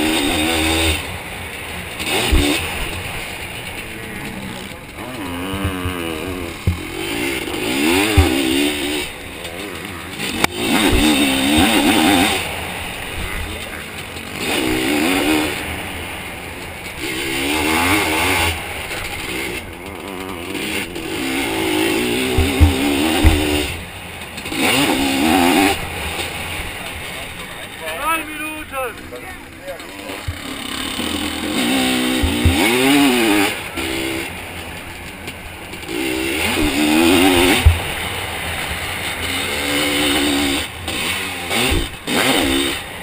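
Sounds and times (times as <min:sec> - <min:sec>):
two-stroke engine revving: 0:00.0 - 0:43.0
low thumps: 0:02.0 - 0:09.2, 0:22.0 - 0:23.9, 0:31.6 - 0:33.1, 0:36.5 - 0:38.0.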